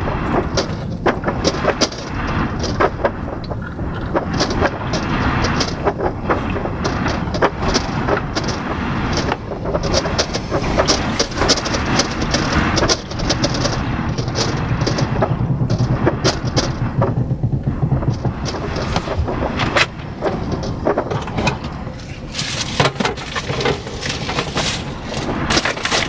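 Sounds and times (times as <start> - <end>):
blizzard wind gusting: 0.0 - 26.0
sharp ticks and knocks: 0.2 - 26.0.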